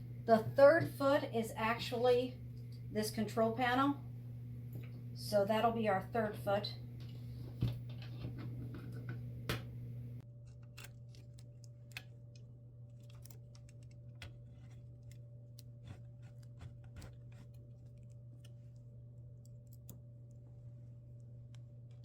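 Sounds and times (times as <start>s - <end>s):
steady low hum: 0.0s - 22.0s
small metal parts clicking: 10.4s - 16.3s.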